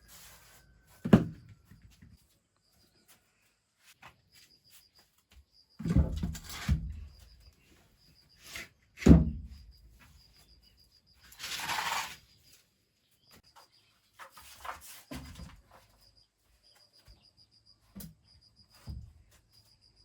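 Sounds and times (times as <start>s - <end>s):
faint high chirp: 1.6s - 5.8s, 9.5s - 11.4s, 15.7s - 20.0s
rasping scrape: 11.3s - 12.4s.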